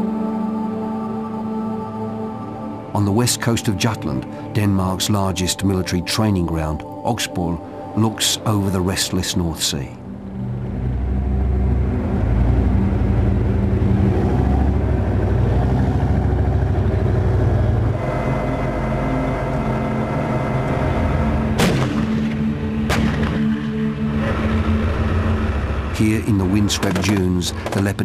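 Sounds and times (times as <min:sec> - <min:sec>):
tank engines droning: 0:00.0 - 0:28.0
gunshots: 0:21.6 - 0:22.3, 0:22.9 - 0:23.6.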